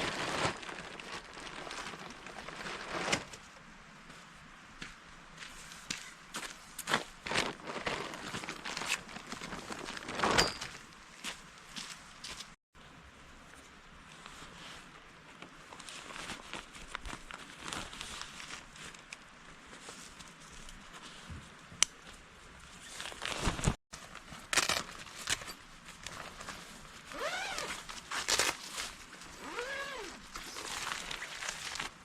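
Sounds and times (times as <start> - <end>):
crunching and rustling: 0.0 - 3.4, 6.8 - 10.9, 22.7 - 32.0.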